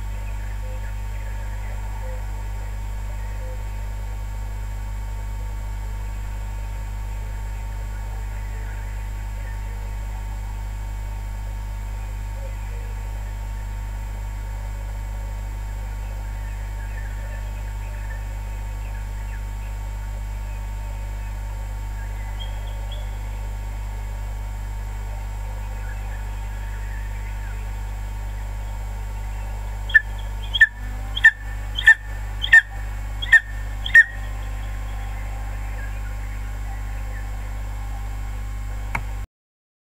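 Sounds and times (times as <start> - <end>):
birds chirping: 0.0 - 4.1, 11.9 - 39.0
steady low hum: 0.0 - 39.3.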